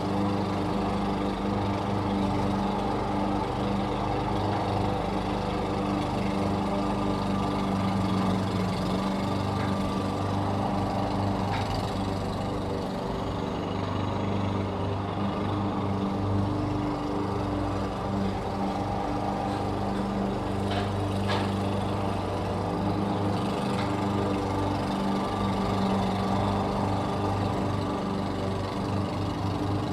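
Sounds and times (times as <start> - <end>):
lawn mower engine running: 0.0 - 29.9.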